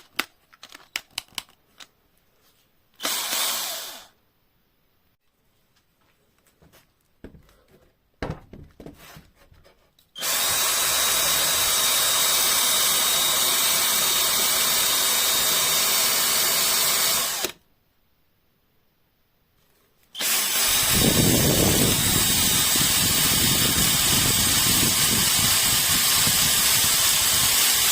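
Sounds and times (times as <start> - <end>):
handling clicks and knocks: 0.0 - 2.0
handheld power drill running: 3.0 - 4.2, 10.2 - 17.6, 20.2 - 27.9.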